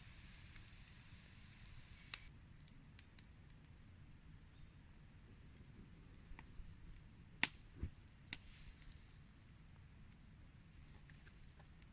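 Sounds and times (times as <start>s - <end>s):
sharp clicks: 1.9s - 2.3s.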